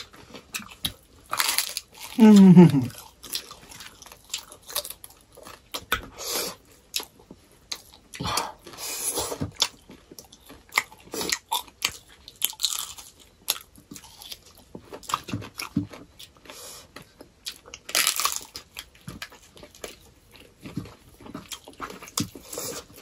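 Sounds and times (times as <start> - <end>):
crisp crunches and bites: 0.0 - 6.1, 17.5 - 23.0
wet chewing and lip sounds: 0.0 - 23.0.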